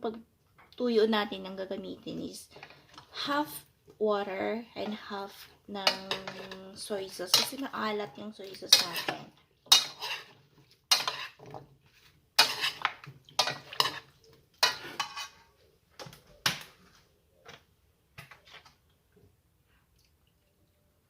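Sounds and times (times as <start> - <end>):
utensil scraping cooking pot: 5.2 - 7.7, 8.5 - 15.7.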